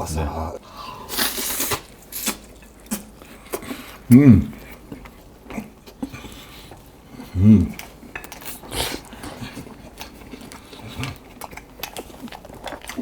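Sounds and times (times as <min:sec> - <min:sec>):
person humming: 0:07.3 - 0:07.8.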